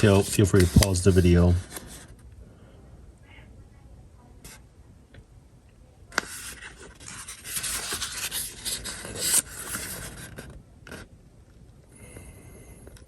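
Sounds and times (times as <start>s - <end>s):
paper pages rustling: 0.0s - 2.2s, 6.2s - 11.0s.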